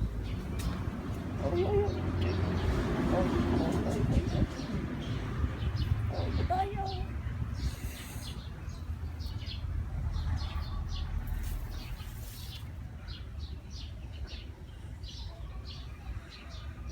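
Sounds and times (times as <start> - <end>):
small birds chirping: 0.0 - 16.7
steady low rumble: 2.1 - 12.3.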